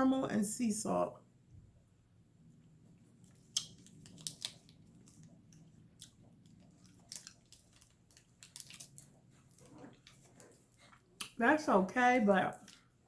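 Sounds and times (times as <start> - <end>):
person biting and chewing: 3.3 - 11.4.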